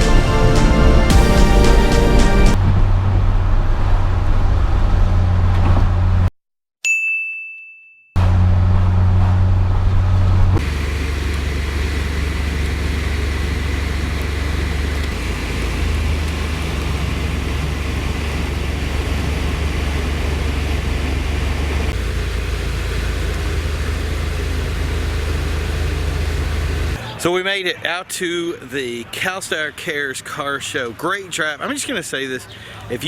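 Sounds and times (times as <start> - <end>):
car engine drone: 0.0 - 6.3, 8.2 - 27.2
road and wind noise: 0.0 - 6.3, 8.2 - 27.2.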